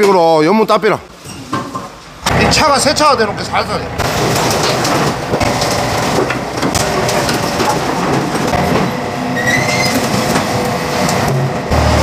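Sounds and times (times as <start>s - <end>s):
excavator engine running: 2.2s - 12.0s
logs knocking and clattering: 4.0s - 9.0s
high squeal: 9.3s - 10.0s.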